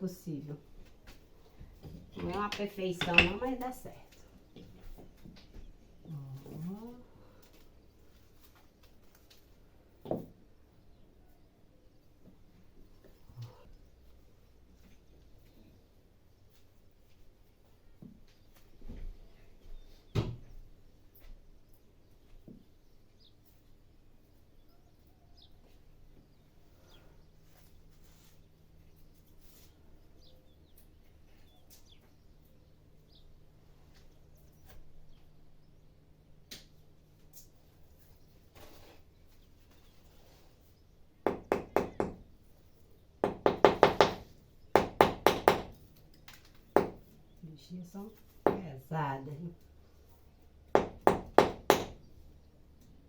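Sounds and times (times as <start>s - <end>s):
stones and tools knocking: 2.2s - 3.5s.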